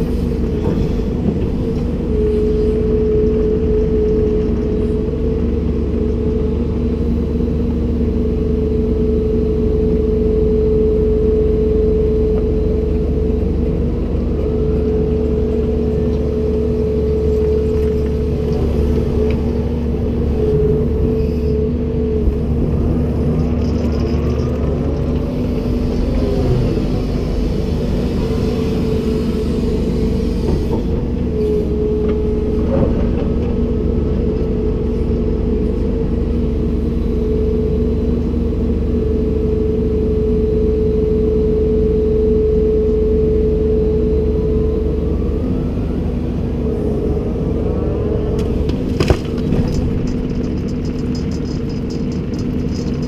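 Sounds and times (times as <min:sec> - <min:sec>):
excavator diesel drone: 0:00.0 - 0:53.0
hydraulic whine: 0:25.0 - 0:34.3.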